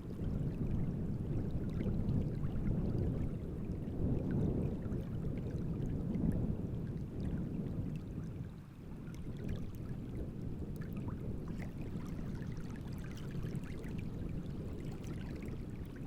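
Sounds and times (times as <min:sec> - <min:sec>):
waves lapping on shore: 0:08.0 - 0:16.0.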